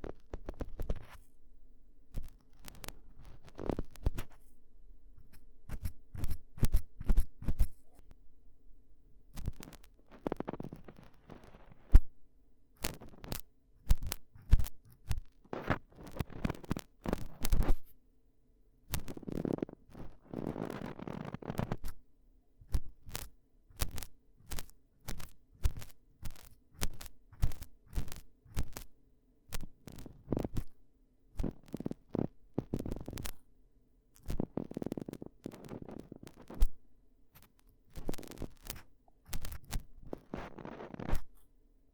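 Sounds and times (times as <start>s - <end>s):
rubbing on microphone: 0.0s - 1.3s, 2.2s - 4.6s, 5.2s - 8.0s, 9.3s - 12.1s, 12.8s - 18.0s, 18.9s - 22.0s, 22.7s - 28.9s, 29.6s - 30.7s, 31.4s - 33.4s, 34.2s - 36.8s, 37.4s - 41.5s
ear-cleaning tools scratching microphone: 5.2s - 7.8s, 37.4s - 41.4s.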